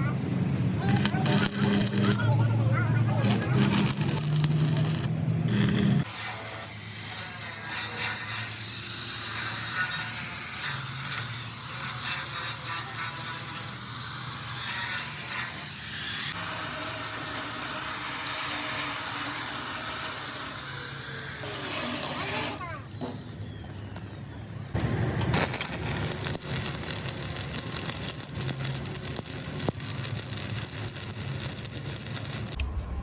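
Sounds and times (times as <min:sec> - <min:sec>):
power tool cutting metal: 0:00.8 - 0:24.1, 0:25.3 - 0:32.6.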